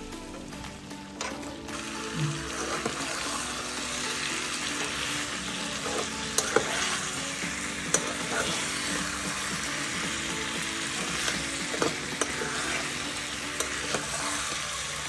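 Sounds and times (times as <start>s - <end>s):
curry sizzling in a pan: 0.0s - 15.0s
ladle clicking against a pan: 11.2s - 12.6s, 13.4s - 14.6s.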